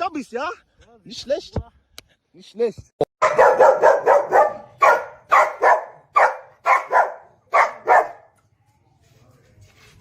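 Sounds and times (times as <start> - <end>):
dog barking loudly: 3.2 - 8.3.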